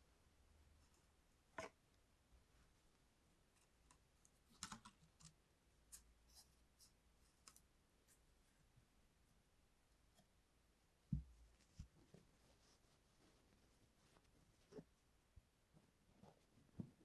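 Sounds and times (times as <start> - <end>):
faint small clicks and taps: 2.9 - 6.4, 7.3 - 7.7.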